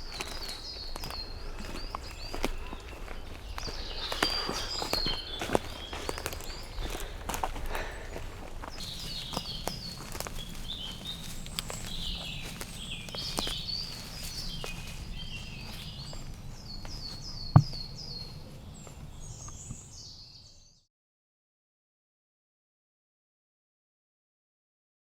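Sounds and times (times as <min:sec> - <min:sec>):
small birds chirping: 0:00.0 - 0:20.9.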